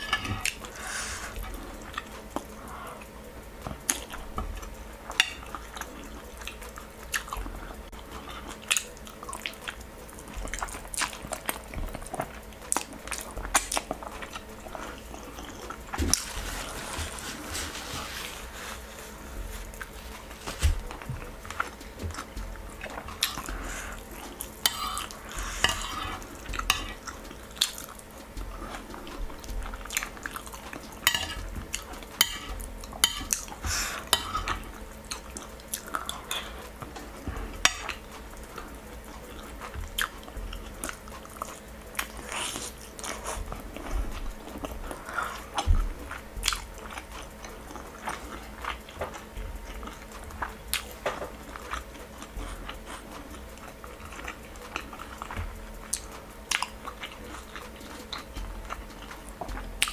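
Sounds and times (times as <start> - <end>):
chewing: 0.0 - 59.9
spoon scraping ceramic plate: 24.7 - 27.0.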